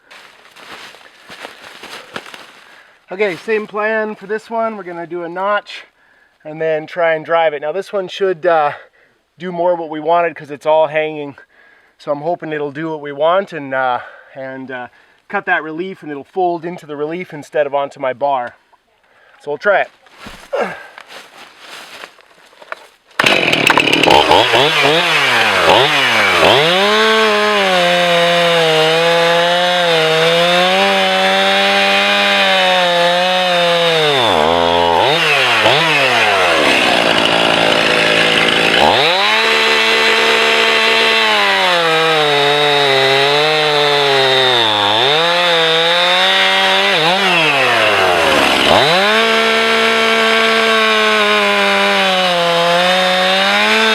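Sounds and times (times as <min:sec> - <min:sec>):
chainsaw cutting wood: 0:00.0 - 0:03.7, 0:22.6 - 0:53.9.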